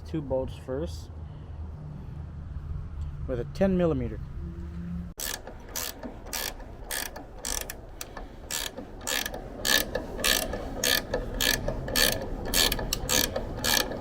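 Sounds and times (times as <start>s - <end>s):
ratchet wrench clicking: 5.2s - 14.0s.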